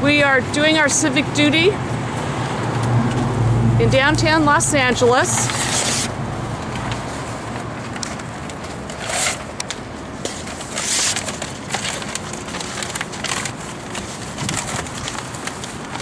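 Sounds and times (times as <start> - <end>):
signs tearing and crumpling: 5.1 - 16.0.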